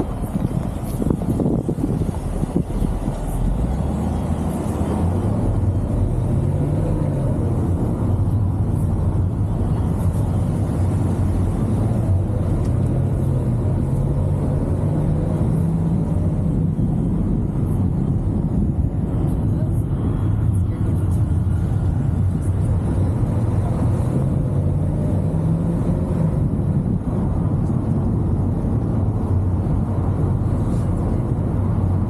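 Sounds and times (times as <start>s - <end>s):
road noise: 0.0s - 32.0s.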